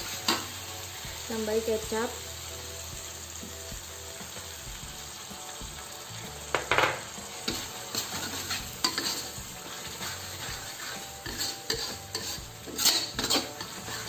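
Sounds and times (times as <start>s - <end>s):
metal spatula scraping a wok: 0.0s - 1.1s, 6.6s - 14.0s
chili paste sizzling in a wok: 0.0s - 14.0s.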